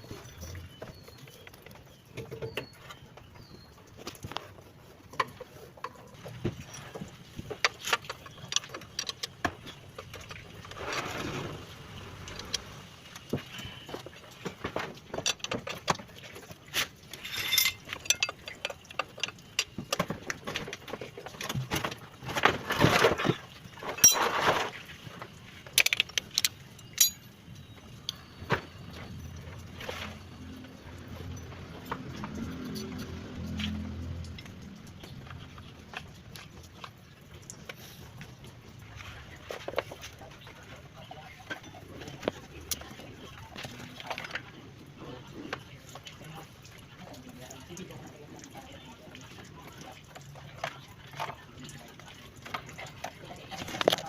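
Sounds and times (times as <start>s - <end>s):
metal rattling: 17.1s - 19.8s, 25.8s - 27.3s
metal hand tools clinking: 17.2s - 19.7s, 24.0s - 24.4s, 25.8s - 27.3s.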